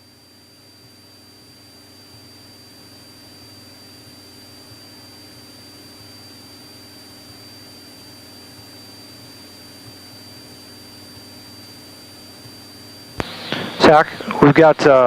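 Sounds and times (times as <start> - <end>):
low hum: 0.0 - 15.0
radio static hiss: 0.0 - 15.0
thin high whine: 0.0 - 15.0.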